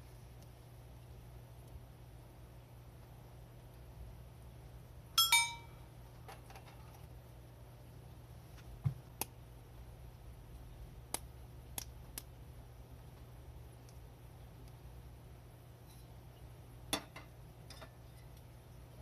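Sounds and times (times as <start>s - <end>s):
hard objects clinking with ringing: 5.2s - 5.8s.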